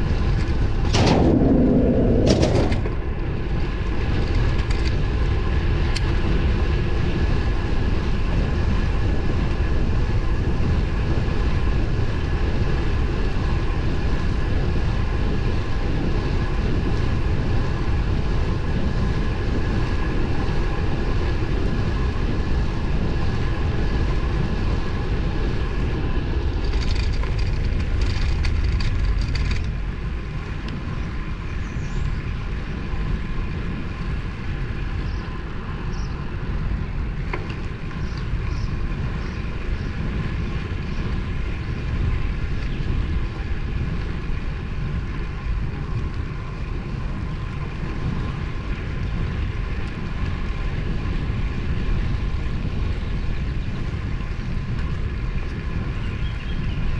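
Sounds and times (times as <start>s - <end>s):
tyre and road noise: 0.0s - 56.9s
wind rushing over microphone: 0.0s - 56.9s
bike clicks: 3.8s - 6.4s, 25.4s - 56.6s.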